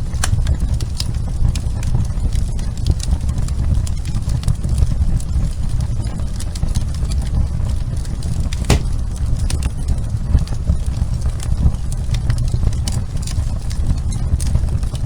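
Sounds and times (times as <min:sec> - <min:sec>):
fire crackles and pops: 0:08.6 - 0:09.2.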